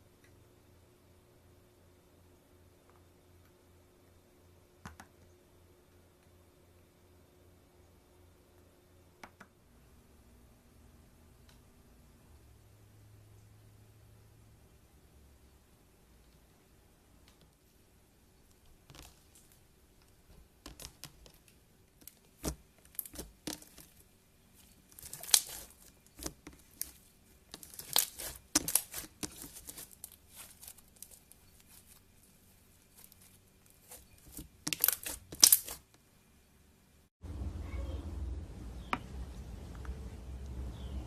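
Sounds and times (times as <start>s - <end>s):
slime crackling and popping: 20.6s - 35.9s.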